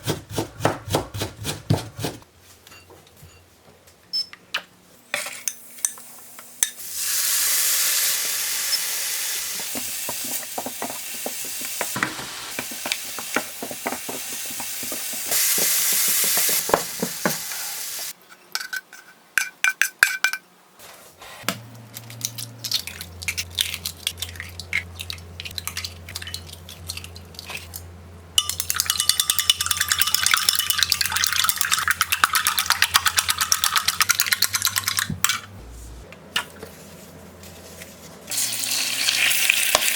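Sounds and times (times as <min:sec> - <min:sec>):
food sizzling in a pan: 0:06.8 - 0:18.2, 0:38.3 - 0:39.9
utensil stirring food: 0:09.5 - 0:18.2, 0:22.7 - 0:35.3
cookware clinking: 0:28.4 - 0:35.5
steady low hum: 0:33.2 - 0:38.3.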